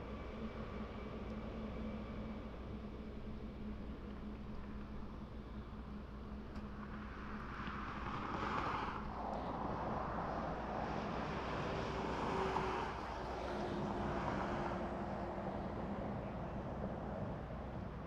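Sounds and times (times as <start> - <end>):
electric train rumbling past: 5.0 - 18.0.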